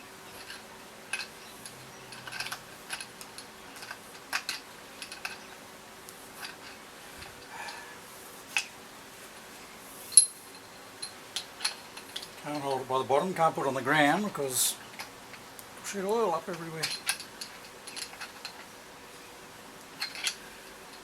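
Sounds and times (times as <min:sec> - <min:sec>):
faint steady hum: 0:00.0 - 0:21.0
metallic clicks of tools: 0:20.0 - 0:21.0.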